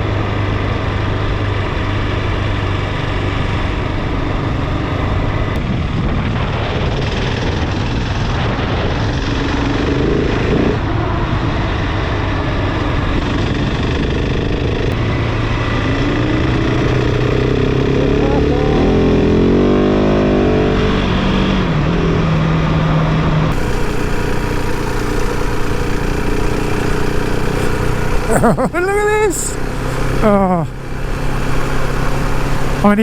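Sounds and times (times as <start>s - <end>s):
motorcycle engine running: 0.0s - 33.0s
wind: 0.0s - 33.0s
tyres on gravel: 23.5s - 32.8s.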